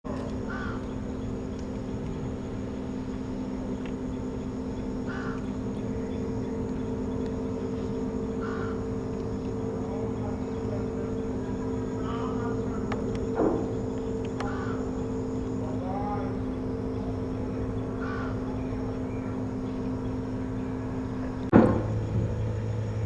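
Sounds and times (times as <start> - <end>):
steady low hum: 0.0 - 23.0
crows cawing: 0.4 - 1.0, 5.0 - 6.4, 7.9 - 9.1, 10.8 - 15.6, 17.8 - 18.9.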